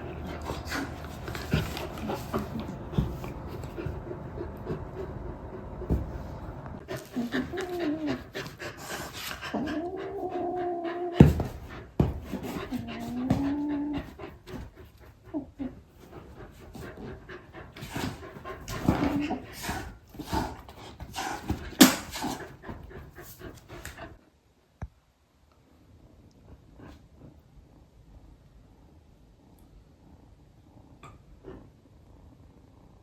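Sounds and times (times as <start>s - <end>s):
dog panting: 0.0s - 24.2s
dog whining: 6.8s - 8.6s, 9.3s - 11.5s, 12.5s - 14.2s.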